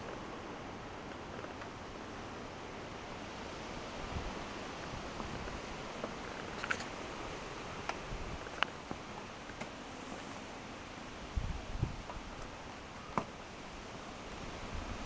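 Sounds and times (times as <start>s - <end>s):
steady hiss: 0.0s - 15.0s
leather clothing rustling: 4.3s - 11.3s, 11.9s - 13.6s.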